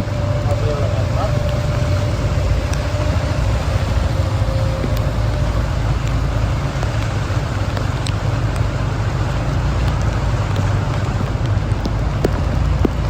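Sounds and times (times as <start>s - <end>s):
road vehicle rumble: 0.0s - 13.0s
faint ticks: 7.7s - 8.7s.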